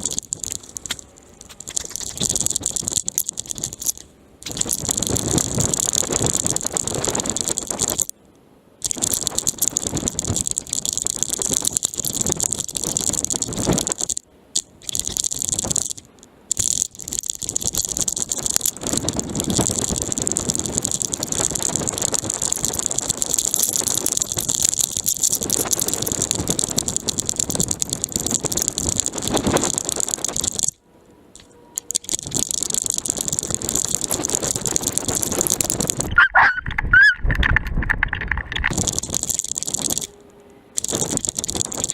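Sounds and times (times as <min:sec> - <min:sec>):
squeaky chirps: 0:36.0 - 0:37.6.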